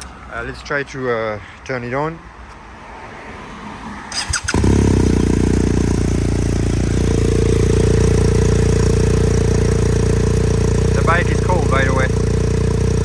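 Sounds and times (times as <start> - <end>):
motorcycle engine starting and running: 4.1 - 13.0.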